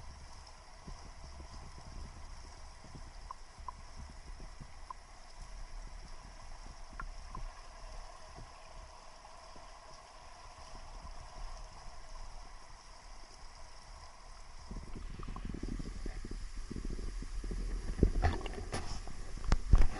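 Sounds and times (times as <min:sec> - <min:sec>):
water knocking against camera: 0:17.9 - 0:19.9.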